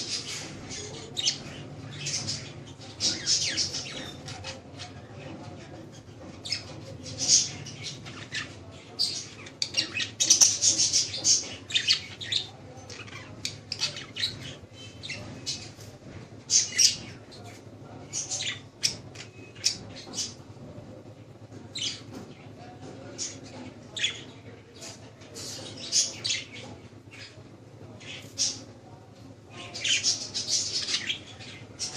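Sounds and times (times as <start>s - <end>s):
parrots chattering and squawking: 0.0s - 20.6s, 29.6s - 31.9s.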